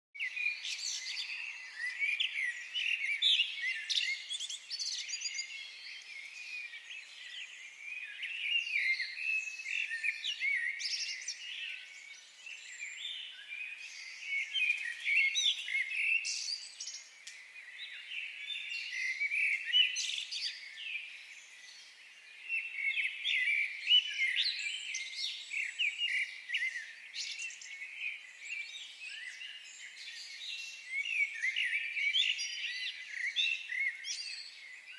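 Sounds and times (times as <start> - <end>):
small birds chirping and trilling: 0.2 - 34.9.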